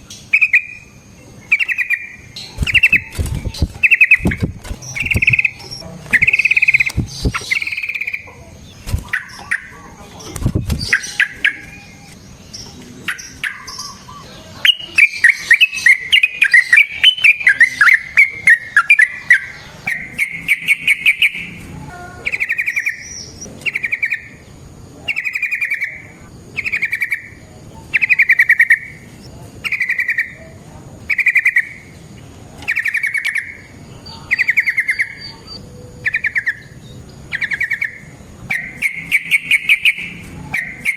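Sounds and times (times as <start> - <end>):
bulbul singing bubbly phrases: 0.0 - 30.4
sharp clicks: 2.6 - 8.1.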